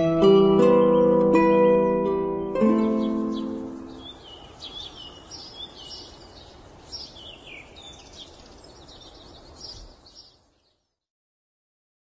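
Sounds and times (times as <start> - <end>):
small birds chirping: 0.6 - 11.1
steady background hiss: 1.2 - 10.7.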